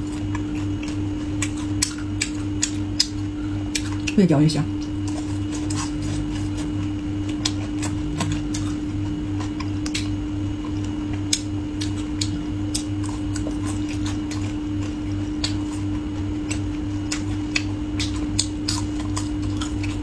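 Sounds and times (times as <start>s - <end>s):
crunchy chewing: 0.0s - 20.0s
steady low hum: 0.0s - 20.0s.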